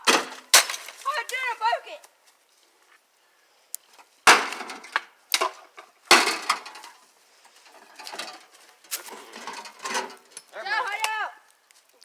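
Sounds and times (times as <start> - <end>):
rattling clatter of broken parts: 0.0 - 1.0, 4.3 - 10.6.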